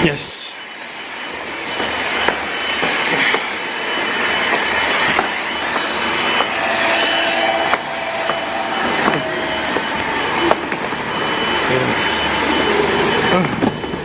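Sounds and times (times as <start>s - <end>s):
faint steady whine: 0.0s - 14.0s
train rumble and hiss: 0.0s - 14.0s.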